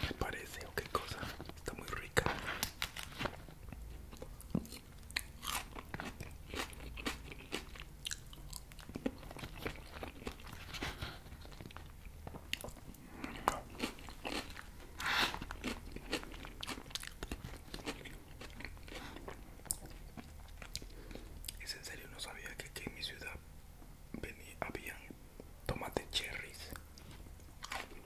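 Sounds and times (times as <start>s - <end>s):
chewing crisp salad: 2.3s - 21.6s, 26.7s - 28.0s.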